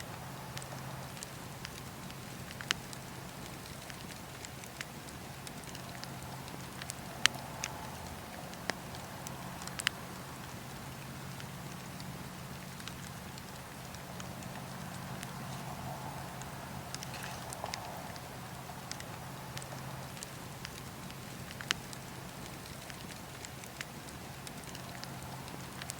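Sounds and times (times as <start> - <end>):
campfire crackling: 0.0 - 25.9
steady low hum: 5.3 - 23.5
wood popping: 14.2 - 19.1.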